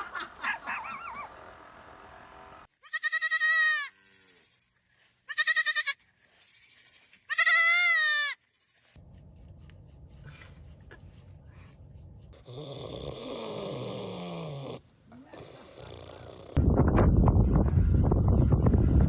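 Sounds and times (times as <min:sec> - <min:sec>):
young goat bleating: 0:02.8 - 0:04.1, 0:05.3 - 0:06.0, 0:06.6 - 0:08.4.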